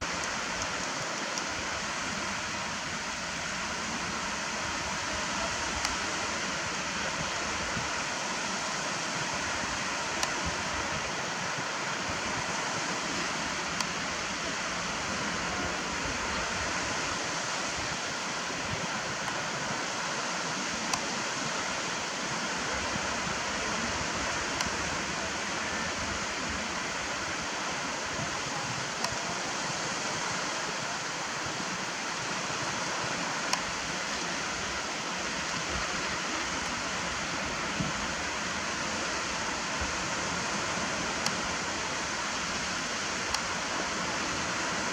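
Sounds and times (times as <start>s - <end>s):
faint sharp clicks: 0.1s - 1.6s, 13.7s - 14.0s, 20.9s - 21.2s, 29.0s - 29.3s, 43.2s - 43.6s.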